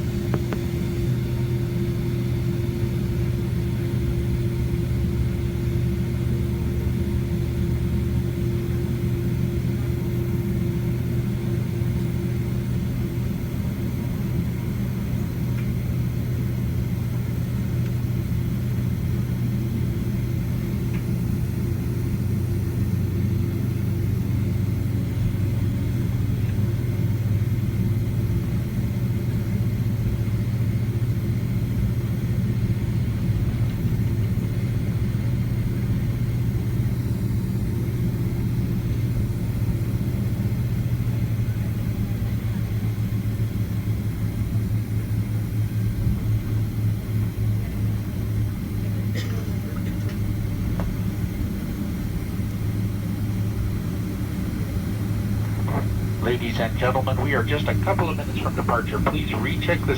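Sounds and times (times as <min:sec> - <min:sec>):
jet engine cabin hum: 0:00.0 - 0:59.9
higher engine hum: 0:54.4 - 0:59.9.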